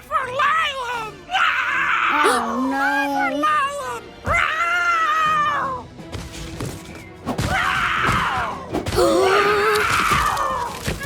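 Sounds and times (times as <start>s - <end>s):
background music: 0.0s - 11.0s
cartoon character groaning and crying: 2.0s - 3.4s.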